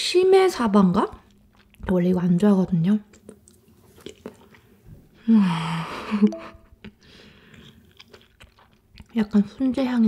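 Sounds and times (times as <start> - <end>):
soft wet chewing: 1.1 - 5.2, 6.6 - 10.0.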